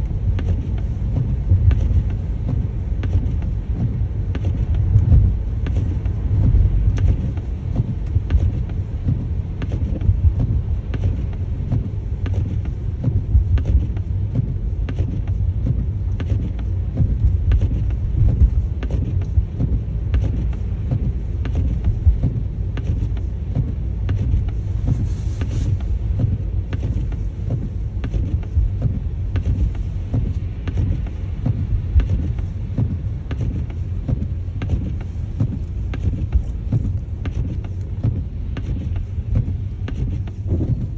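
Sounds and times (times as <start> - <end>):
road and engine rumble: 0.0 - 40.9.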